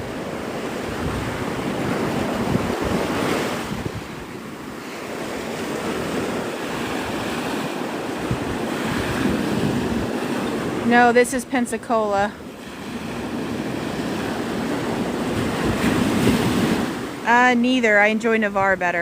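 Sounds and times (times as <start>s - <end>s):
surf breaking on beach: 0.0s - 17.6s
wind buffeting microphone: 0.0s - 19.0s.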